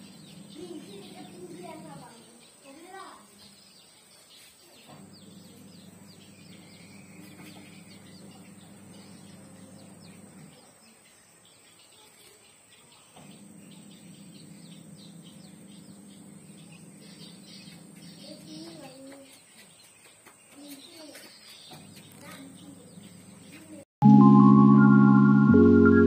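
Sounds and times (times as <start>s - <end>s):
small birds chirping: 0.0s - 23.9s
low electric hum: 13.3s - 18.2s.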